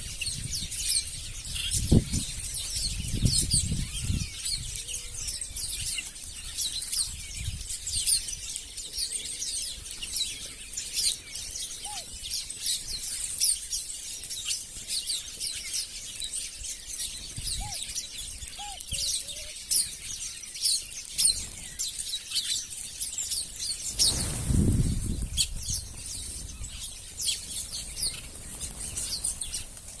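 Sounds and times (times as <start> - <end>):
small birds chirping: 0.0 - 30.0
lower bird calls: 9.0 - 13.0, 17.2 - 19.9
brief rush of noise: 23.8 - 25.5.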